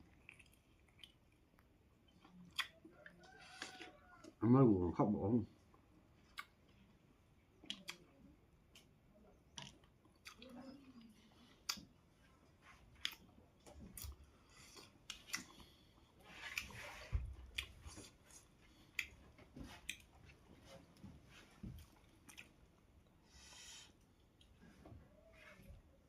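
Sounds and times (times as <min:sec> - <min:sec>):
person chewing: 0:00.0 - 0:04.4, 0:05.6 - 0:21.0, 0:21.6 - 0:24.6
wet mouth clicks and smacks: 0:02.2 - 0:02.8, 0:07.6 - 0:08.0.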